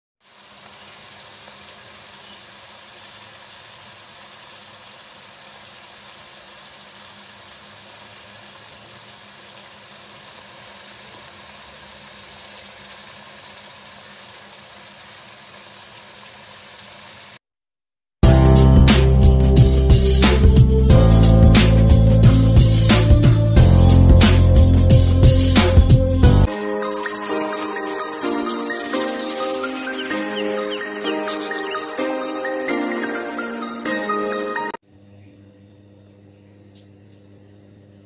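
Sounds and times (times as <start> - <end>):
meat sizzling in oil: 0.2 - 17.4.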